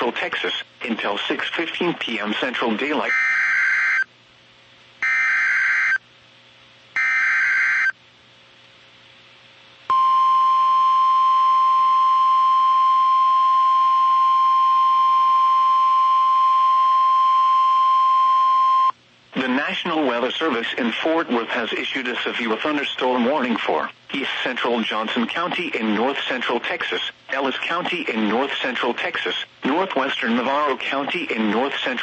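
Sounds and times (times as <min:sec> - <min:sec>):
steady warning alarm tone: 0:03.1 - 0:04.1, 0:05.0 - 0:06.0, 0:07.0 - 0:08.0.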